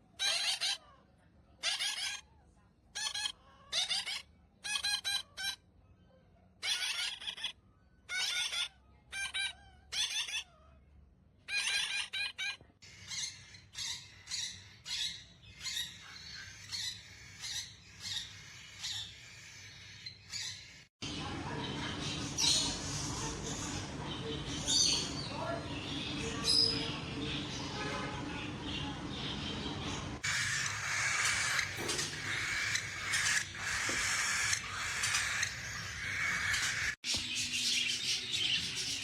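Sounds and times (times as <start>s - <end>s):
parrot squawking: 0.2s - 0.9s, 1.6s - 2.3s, 2.9s - 5.7s, 6.6s - 10.8s, 11.5s - 20.8s, 29.2s - 37.0s.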